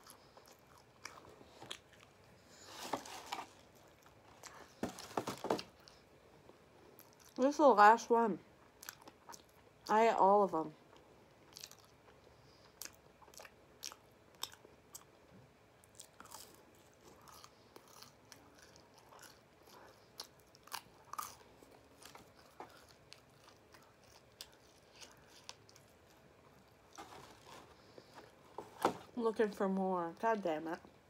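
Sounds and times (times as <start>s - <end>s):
person chewing crunchy snack: 0.0s - 2.7s, 8.8s - 9.6s, 10.9s - 15.1s, 15.8s - 28.4s.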